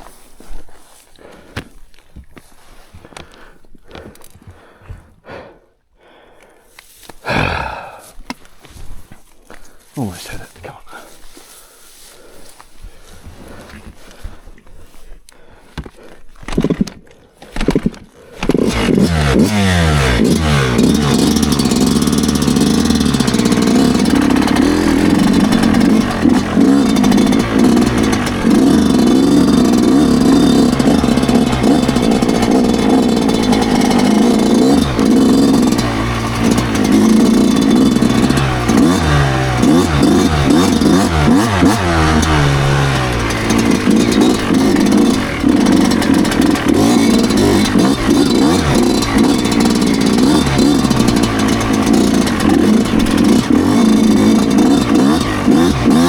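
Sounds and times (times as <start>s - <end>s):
two-stroke motorcycle engine revving: 17.6s - 56.0s.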